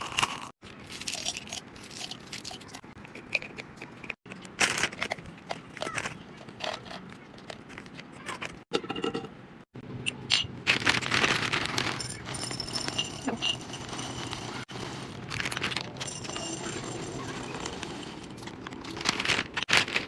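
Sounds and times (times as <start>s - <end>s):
containers scraping and knocking: 10.3s - 20.0s
plastic packaging crinkling: 10.7s - 12.3s, 14.3s - 16.1s, 18.4s - 20.0s.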